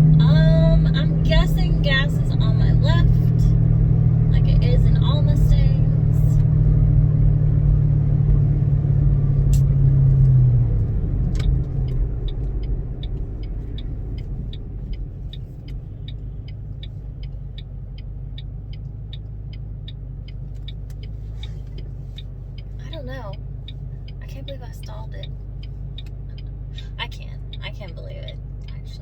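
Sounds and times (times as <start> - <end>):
car engine running at low revs: 0.0 - 29.0
low background rumble: 0.0 - 29.0
sharp click: 9.5 - 9.8
light ticking: 11.2 - 29.0.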